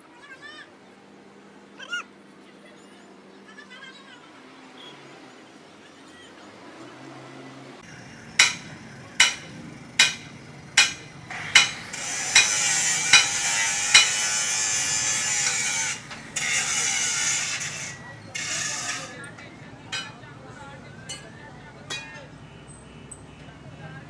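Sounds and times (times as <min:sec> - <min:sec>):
hammer ringing on metal: 0:08.2 - 0:16.5, 0:19.9 - 0:20.2, 0:21.1 - 0:22.3.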